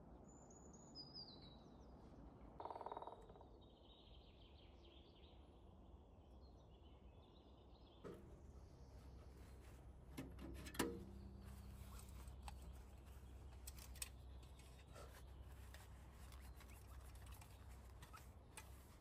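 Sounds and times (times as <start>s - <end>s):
faint bird chirps: 2.6s - 5.6s
sharp clicks and knocks: 8.0s - 9.3s, 10.1s - 12.9s.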